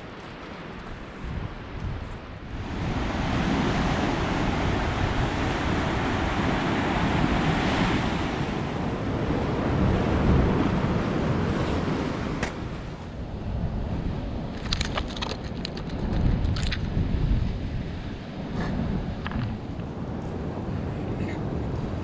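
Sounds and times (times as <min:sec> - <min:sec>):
sea waves breaking on shore: 0:00.0 - 0:14.8
wind buffeting microphone: 0:00.0 - 0:22.0.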